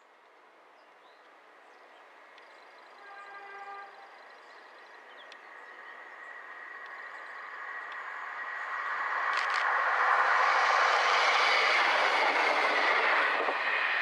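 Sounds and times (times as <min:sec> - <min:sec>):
train horn: 0:03.0 - 0:04.2
train running noise: 0:05.0 - 0:14.0.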